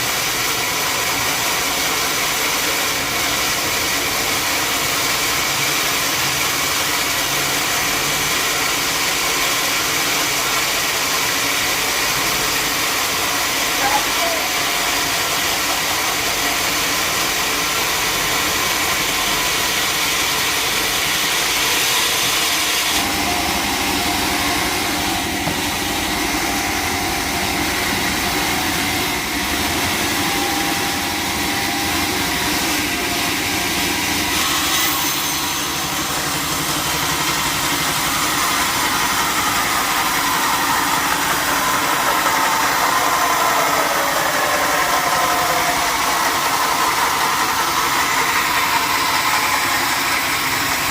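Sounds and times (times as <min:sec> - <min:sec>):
sawmill machinery running: 0:00.0 - 0:50.9
rising tones: 0:23.0 - 0:34.3.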